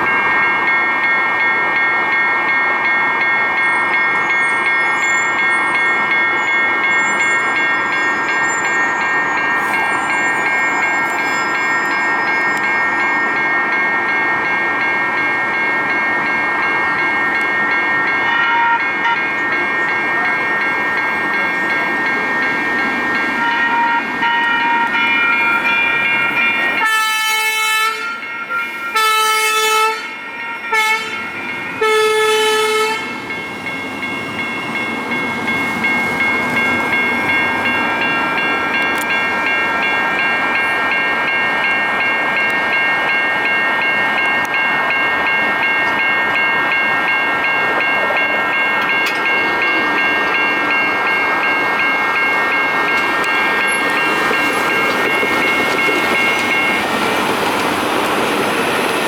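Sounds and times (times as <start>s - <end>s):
train whine and running noise: 0.0s - 59.0s
train horn blasts: 18.3s - 19.2s, 23.4s - 26.0s, 26.8s - 33.2s.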